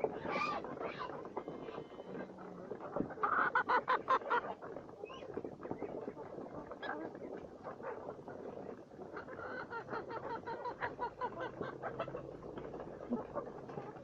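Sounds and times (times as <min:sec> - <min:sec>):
poultry clucking and calling: 0:00.0 - 0:14.0.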